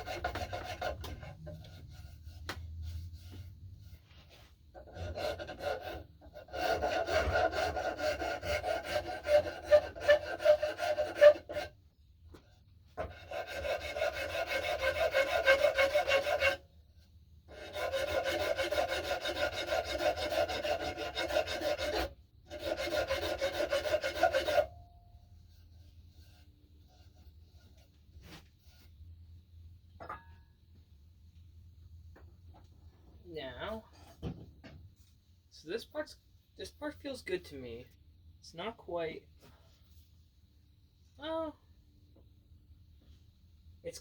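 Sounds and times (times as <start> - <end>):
wood rasp scraping wood: 0.0 - 11.8, 13.0 - 16.7, 17.5 - 24.8, 25.4 - 29.0.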